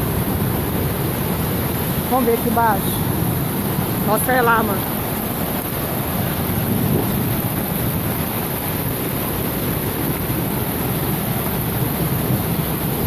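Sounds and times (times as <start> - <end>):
heavy rain: 0.0 - 13.0
strong wind gusts: 0.0 - 13.0
wind buffeting microphone: 0.0 - 13.0.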